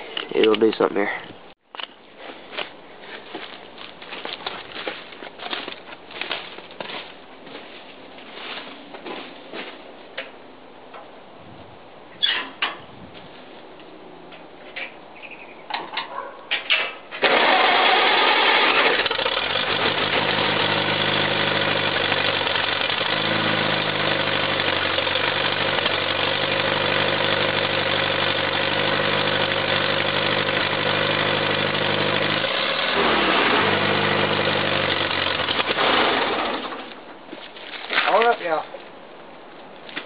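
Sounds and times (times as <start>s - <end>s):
tractor engine starting and idling: 16.7s - 37.1s.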